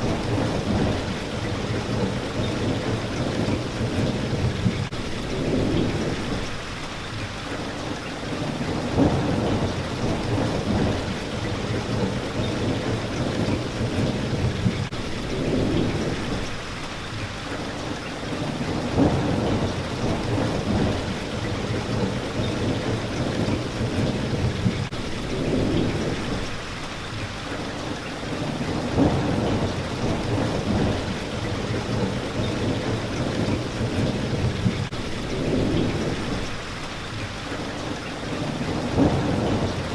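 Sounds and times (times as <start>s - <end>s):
thunder rumbling: 0.0s - 6.6s, 8.3s - 16.6s, 18.3s - 26.8s, 28.3s - 36.8s, 38.3s - 39.9s
rain hitting a window: 0.0s - 39.9s.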